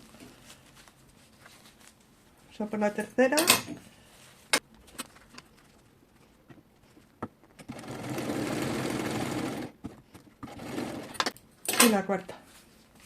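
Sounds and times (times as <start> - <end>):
sewing machine running: 7.7 - 9.7, 10.4 - 11.3.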